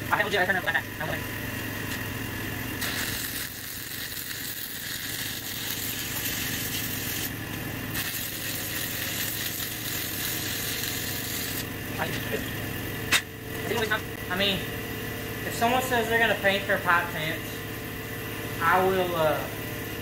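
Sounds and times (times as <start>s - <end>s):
welding arc crackling and sizzling: 1.7s - 14.4s.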